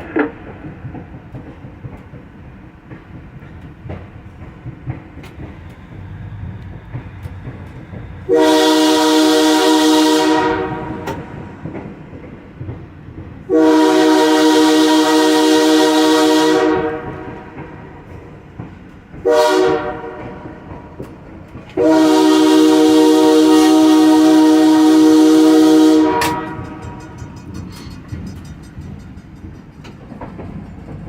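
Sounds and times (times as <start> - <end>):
locomotive rumble: 0.0 - 31.0
locomotive air horn blasts: 8.3 - 11.4, 13.5 - 17.4, 19.2 - 20.4, 21.8 - 27.2.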